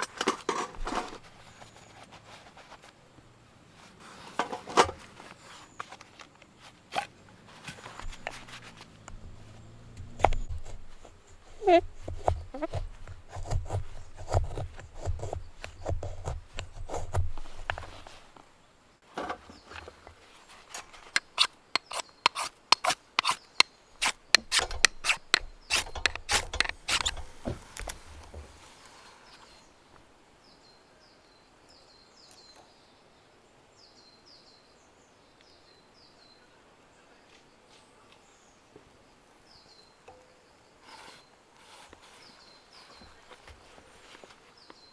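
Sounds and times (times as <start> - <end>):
wood rubbing and scraping: 0.0 - 2.9, 6.9 - 18.5, 19.1 - 29.6, 40.8 - 44.6.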